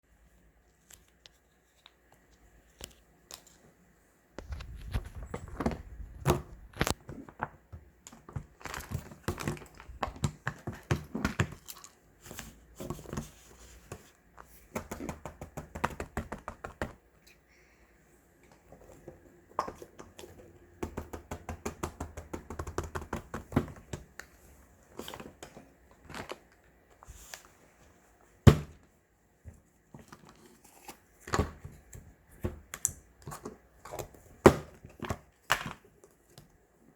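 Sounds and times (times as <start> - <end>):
paper toys crinkling: 8.5 - 10.0.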